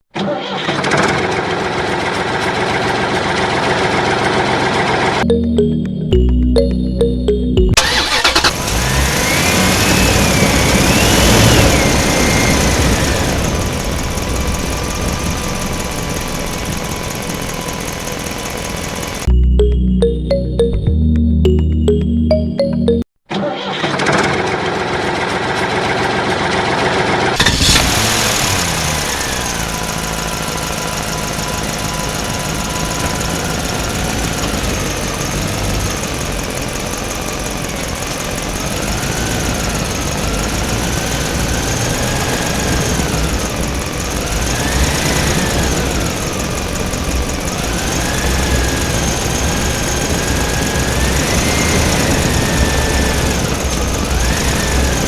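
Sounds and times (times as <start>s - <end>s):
small motor knocking rumble: 8.4s - 19.3s, 27.4s - 55.0s.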